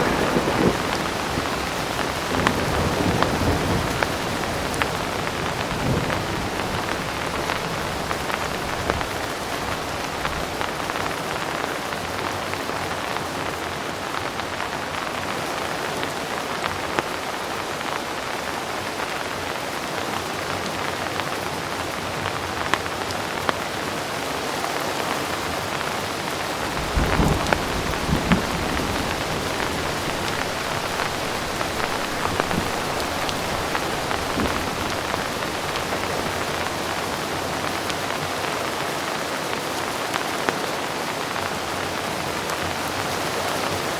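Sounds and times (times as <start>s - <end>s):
distant thunder rumble: 0.0s - 10.7s, 26.6s - 37.1s
heavy rain falling: 0.0s - 43.9s
raindrop ticks: 26.6s - 38.6s.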